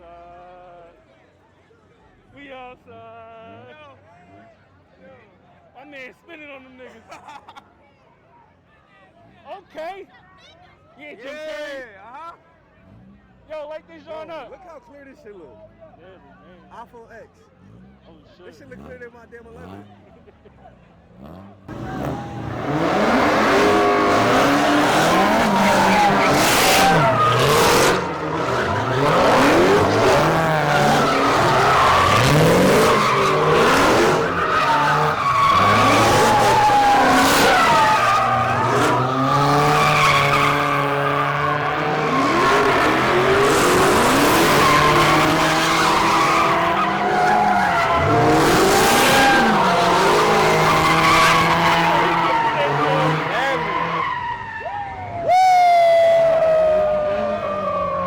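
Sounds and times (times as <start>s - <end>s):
car engine revving: 20.9s - 54.3s, 55.5s - 58.0s
tires squealing: 21.0s - 58.0s.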